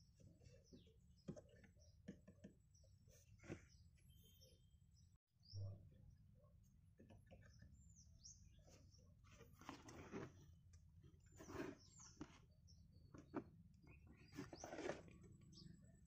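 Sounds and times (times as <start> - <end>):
faint high bird chirps: 0.1 - 6.5.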